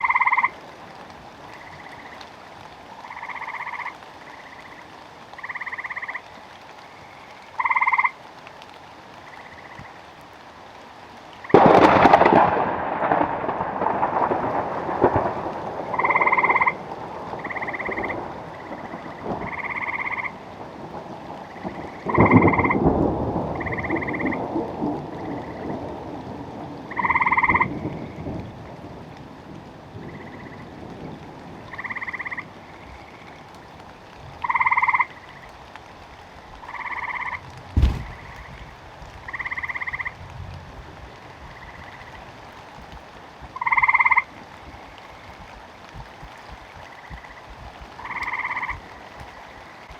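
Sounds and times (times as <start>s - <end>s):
frogs croaking: 0.0s - 0.6s, 1.4s - 8.2s, 9.2s - 10.1s, 11.4s - 26.1s, 26.7s - 29.1s, 29.9s - 33.8s, 34.4s - 35.6s, 36.6s - 40.2s, 41.4s - 42.3s, 43.6s - 45.4s, 46.8s - 49.9s
rain: 0.0s - 49.9s
thunder rumbling: 11.5s - 29.1s, 37.6s - 39.7s.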